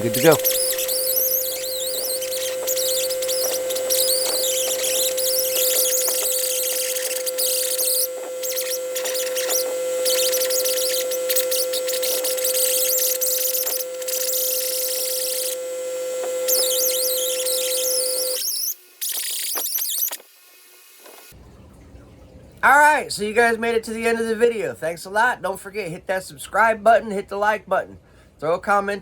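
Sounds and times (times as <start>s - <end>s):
powered wire wheel scrubbing metal: 0.0s - 20.1s.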